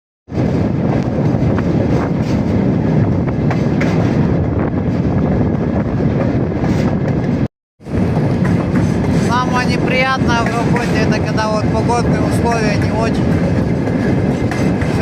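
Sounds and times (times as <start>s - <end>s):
train wheels rumbling: 0.3s - 15.0s
wind buffeting microphone: 0.3s - 15.0s.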